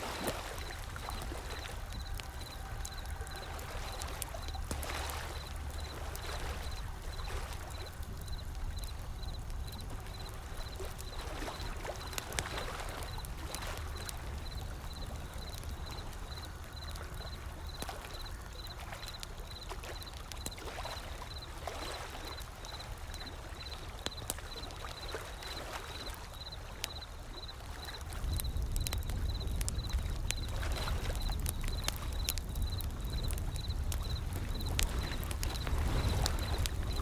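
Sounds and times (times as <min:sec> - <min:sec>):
ocean waves washing: 0:00.0 - 0:19.2
wood fire crackling and popping: 0:00.0 - 0:37.0.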